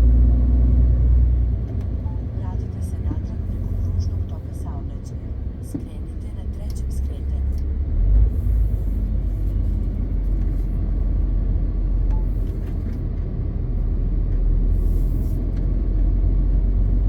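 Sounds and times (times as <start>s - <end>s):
truck diesel engine running: 0.0s - 17.0s
tyre and road noise: 5.4s - 17.0s.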